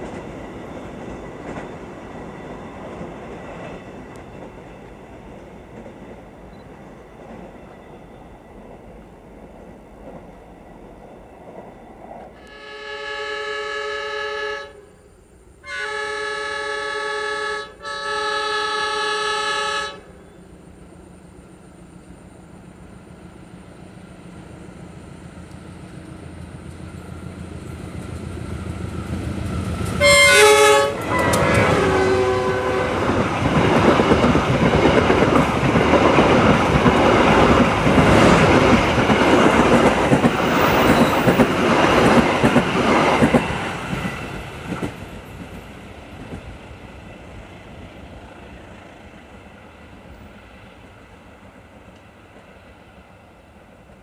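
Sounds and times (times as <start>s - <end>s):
train wheels clattering on rails: 0.0s - 12.4s, 22.4s - 49.3s
diesel locomotive horn blasts: 12.4s - 15.0s, 15.6s - 20.2s, 30.0s - 33.2s.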